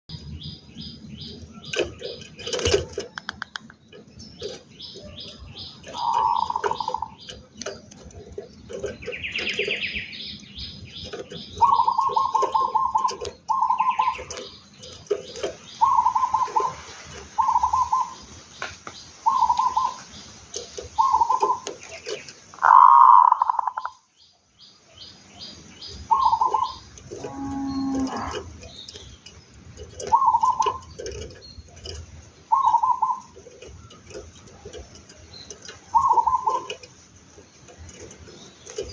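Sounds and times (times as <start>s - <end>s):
dove cooing: 4.4s - 10.2s, 11.0s - 18.2s, 19.2s - 24.0s, 26.0s - 29.1s, 29.8s - 37.0s.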